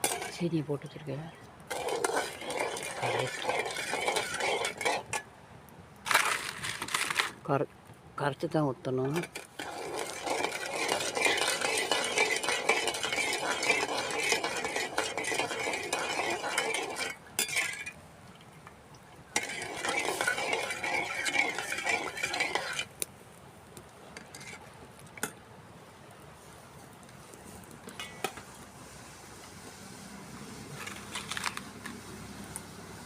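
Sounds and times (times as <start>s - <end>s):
metal spoon stirring in metal pan: 0.0s - 0.6s, 1.3s - 5.3s, 9.0s - 18.0s, 19.2s - 23.0s, 24.2s - 24.6s, 27.8s - 28.4s.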